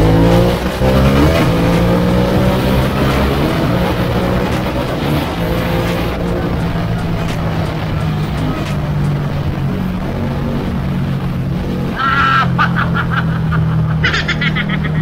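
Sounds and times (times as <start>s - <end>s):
motorcycle engine cruising: 0.0s - 15.0s
riding wind rush: 0.0s - 15.0s.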